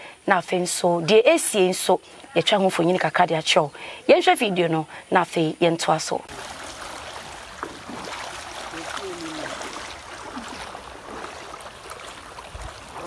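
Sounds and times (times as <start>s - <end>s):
running water rushing: 6.3s - 13.0s
faint voices: 8.6s - 13.0s.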